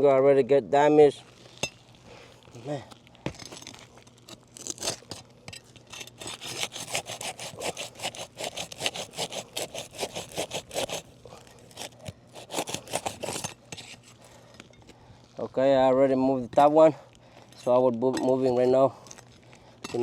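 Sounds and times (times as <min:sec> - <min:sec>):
pry bar scraping under shingles: 0:01.4 - 0:14.7.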